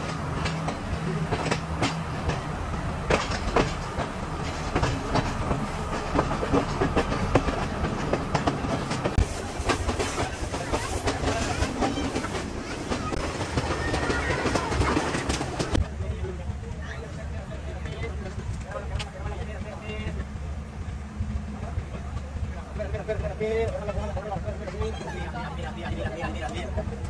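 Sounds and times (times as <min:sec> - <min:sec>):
wheels clattering over rail joints: 0:00.0 - 0:20.2
train rumbling: 0:00.0 - 0:27.0.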